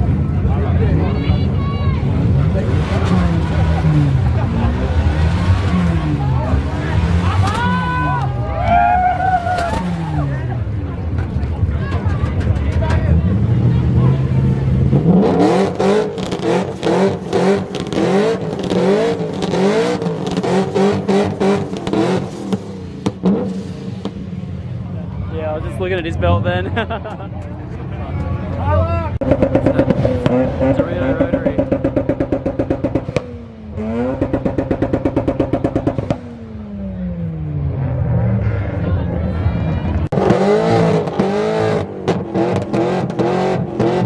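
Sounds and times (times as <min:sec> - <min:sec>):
rotary engine on rev limiter: 0:29.2 - 0:39.4.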